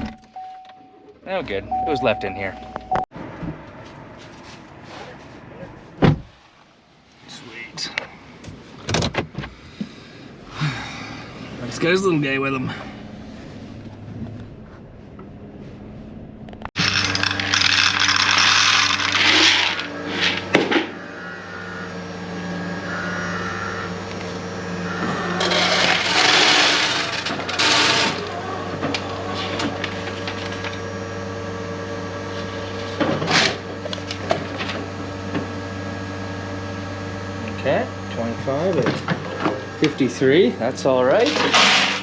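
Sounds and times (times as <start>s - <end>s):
low machine hum: 9.7s - 42.0s
corn kernels rattling: 16.8s - 20.4s.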